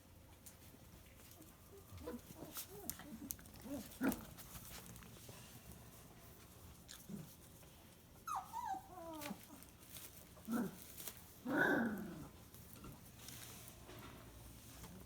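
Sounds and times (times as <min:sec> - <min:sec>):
puppies whining and yelping: 0:08.2 - 0:09.8.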